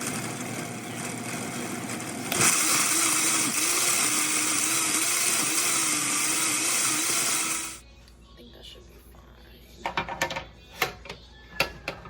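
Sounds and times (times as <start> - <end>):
blender running: 0.0 - 7.8.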